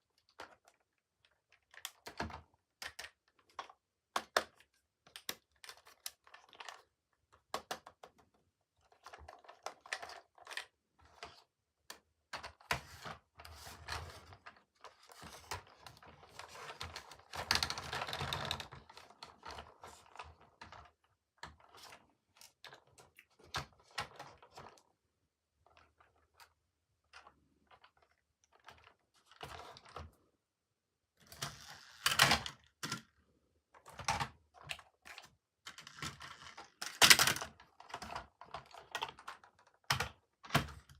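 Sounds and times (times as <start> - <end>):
plastic toy pieces clicking: 35.7 - 39.2.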